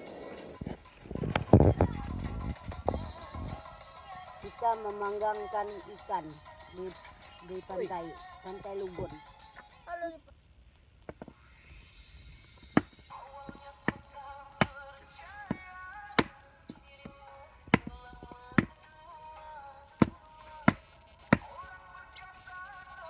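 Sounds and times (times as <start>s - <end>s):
background music with melody: 0.0s - 9.9s
sharp chopping strikes: 12.8s - 18.8s, 20.0s - 21.6s.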